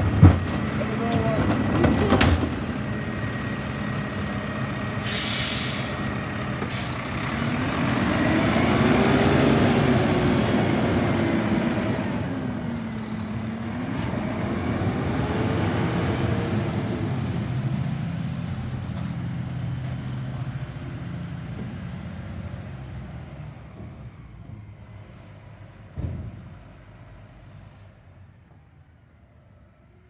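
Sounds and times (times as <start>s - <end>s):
garbage truck engine revving: 0.0s - 18.8s
air brake hiss: 5.0s - 7.0s.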